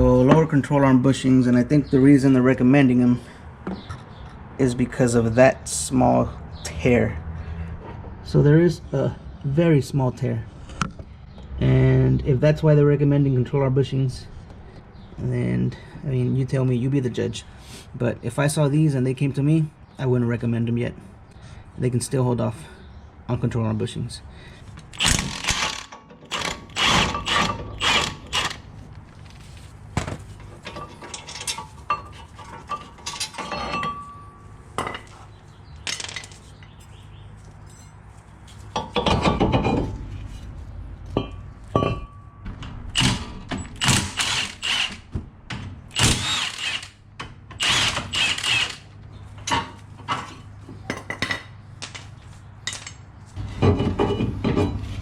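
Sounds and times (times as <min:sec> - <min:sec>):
tools clanking on metal: 0:30.0 - 0:35.2, 0:38.7 - 0:40.1, 0:41.1 - 0:42.8, 0:52.7 - 0:55.0.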